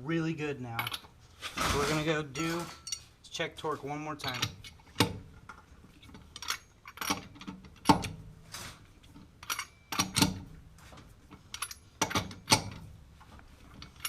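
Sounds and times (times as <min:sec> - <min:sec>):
socket wrench clinking on nuts: 0:06.3 - 0:08.1, 0:09.4 - 0:10.4, 0:11.5 - 0:12.8.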